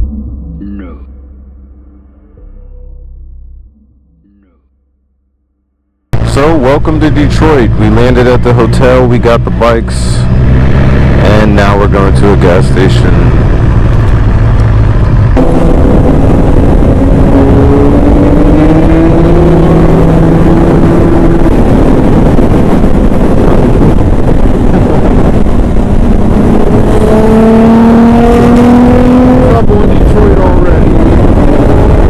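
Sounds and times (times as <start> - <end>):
motorcycle engine accelerating: 6.1 - 32.0
wind rush on microphone: 6.2 - 32.0.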